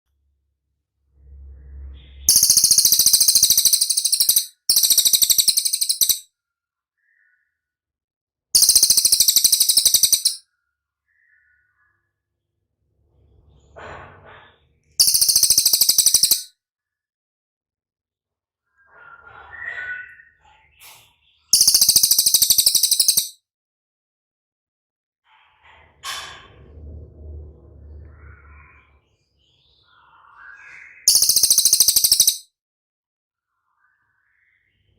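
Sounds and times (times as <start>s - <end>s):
soft bird chirps: 1.8s - 6.2s, 7.0s - 7.7s, 8.6s - 10.4s, 15.0s - 16.5s, 18.7s - 23.4s, 28.2s - 32.4s
songbird high-pitched trills: 2.3s - 6.2s, 8.6s - 10.4s, 15.0s - 16.5s, 21.6s - 23.4s, 31.1s - 32.4s.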